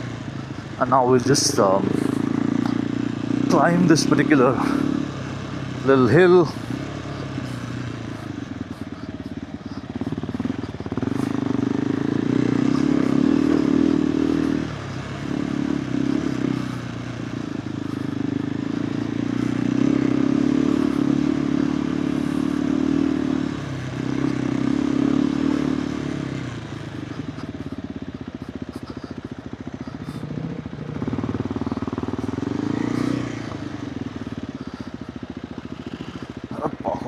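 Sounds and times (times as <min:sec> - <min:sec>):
motorcycle engine under throttle: 0:00.0 - 0:37.0.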